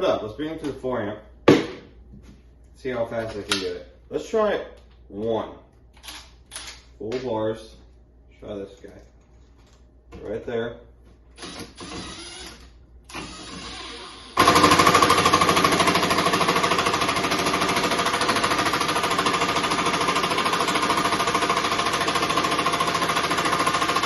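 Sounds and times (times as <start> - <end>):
impact driver hammering: 14.4 - 24.0.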